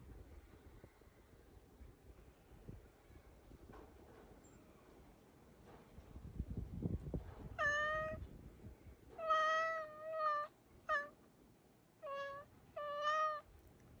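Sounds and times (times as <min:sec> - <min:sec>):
cat chirping meows: 0:07.6 - 0:08.2, 0:09.2 - 0:11.1, 0:12.0 - 0:13.5.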